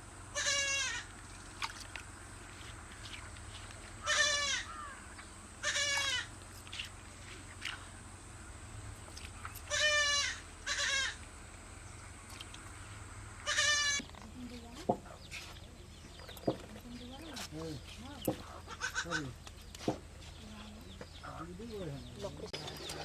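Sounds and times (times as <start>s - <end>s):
steady low hum: 0.0s - 23.0s
livestock bleating: 0.3s - 1.1s, 4.0s - 4.9s, 5.6s - 6.3s, 9.7s - 11.2s, 13.4s - 14.0s.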